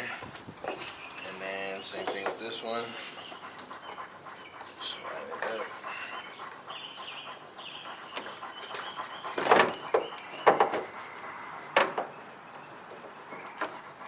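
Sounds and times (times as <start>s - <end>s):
sharp clicks and knocks: 8.2s - 11.0s, 11.7s - 12.2s.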